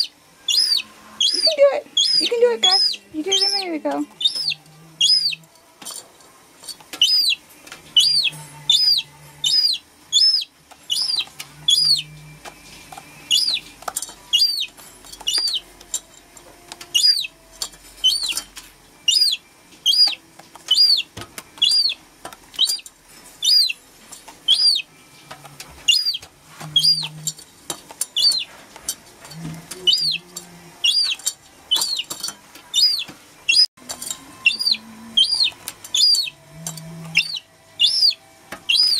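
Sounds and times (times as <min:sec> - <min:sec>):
gull chick peeping: 0:00.0 - 0:05.4, 0:07.0 - 0:07.4, 0:08.0 - 0:12.1, 0:13.3 - 0:13.7, 0:14.3 - 0:14.7, 0:15.3 - 0:15.6, 0:16.9 - 0:17.3, 0:18.0 - 0:18.4, 0:19.1 - 0:22.0, 0:22.6 - 0:22.8, 0:23.4 - 0:23.8, 0:24.5 - 0:24.9, 0:25.8 - 0:27.2, 0:28.2 - 0:28.5, 0:29.8 - 0:30.2, 0:30.8 - 0:32.1, 0:32.7 - 0:33.7, 0:34.4 - 0:36.4, 0:37.1 - 0:38.9.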